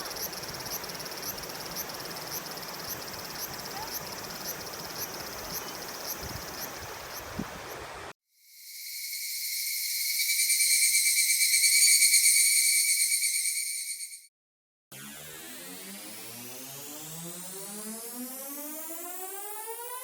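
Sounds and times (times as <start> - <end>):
faint hiss: 0.0 - 8.1
insects chirping: 0.0 - 14.3.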